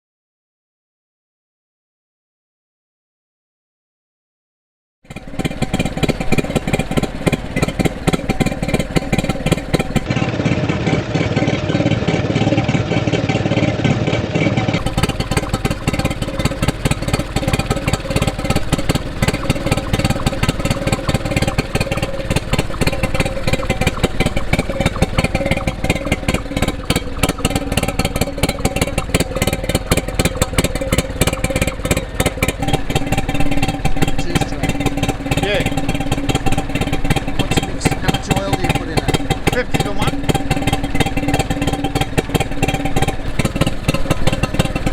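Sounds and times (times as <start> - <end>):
two-stroke marine engine running: 5.0 - 44.9.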